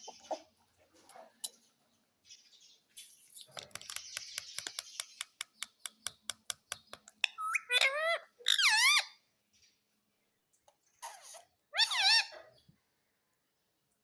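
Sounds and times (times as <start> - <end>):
parrot clicking: 3.6 - 7.4
parrot squawking: 7.2 - 9.2, 11.0 - 12.6.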